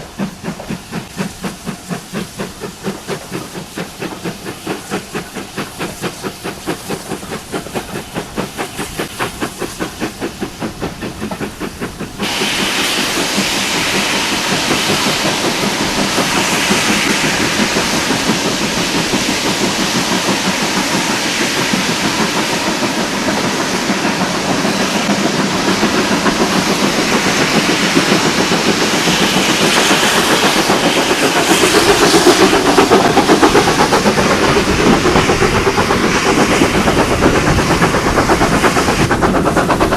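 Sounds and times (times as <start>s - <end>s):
steam locomotive chuffing: 0.0s - 39.9s
train rushing on rails: 0.0s - 39.9s.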